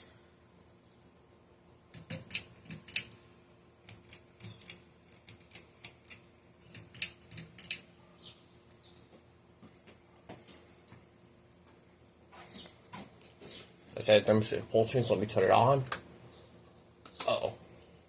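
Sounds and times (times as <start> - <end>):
small hard parts clicking: 1.9 - 3.2, 3.8 - 7.9.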